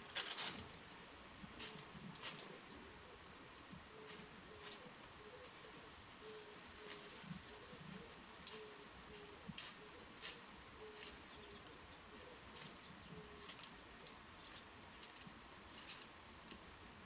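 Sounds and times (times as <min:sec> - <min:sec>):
faint dove coos: 0:01.6 - 0:14.2.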